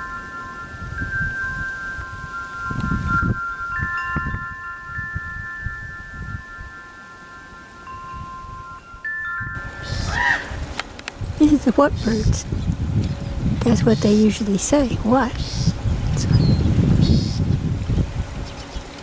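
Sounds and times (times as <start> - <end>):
wind chimes ringing: 0.0 - 12.2
wind gusting on microphone: 0.0 - 19.0.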